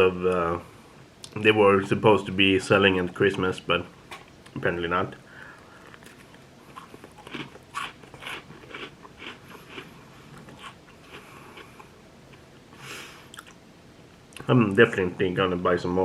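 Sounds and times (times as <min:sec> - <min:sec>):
crunchy cookie chewing: 0:05.4 - 0:12.7.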